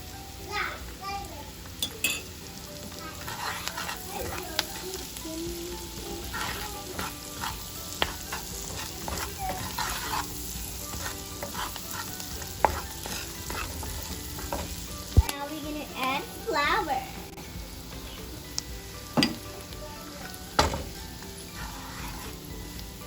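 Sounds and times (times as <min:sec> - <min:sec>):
onions sizzling in a pan: 0:00.0 - 0:23.0
spoon scraping a pan: 0:01.7 - 0:15.2, 0:17.9 - 0:23.0
spoon tapping against pan: 0:01.8 - 0:02.3, 0:06.3 - 0:10.3, 0:10.9 - 0:15.3, 0:17.9 - 0:19.5.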